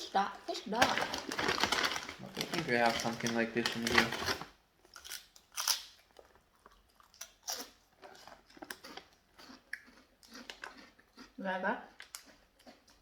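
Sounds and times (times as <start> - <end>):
crunching crispy snack: 1.0 - 6.0.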